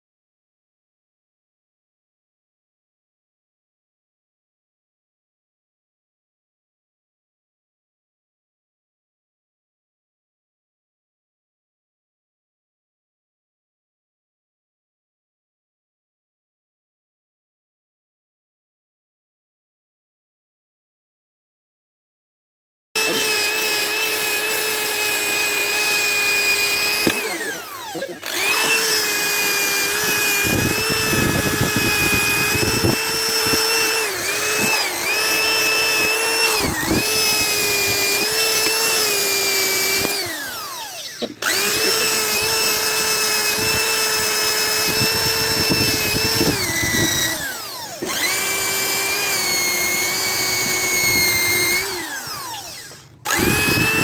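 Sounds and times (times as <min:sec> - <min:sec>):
electric buffing motor whining: 0:23.0 - 0:54.0.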